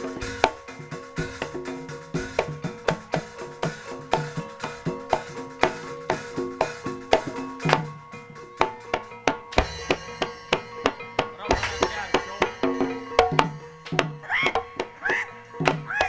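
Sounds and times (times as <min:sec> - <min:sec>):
tuned percussion and hand drums: 0:00.0 - 0:16.0
deep low drum strikes: 0:08.6 - 0:15.0.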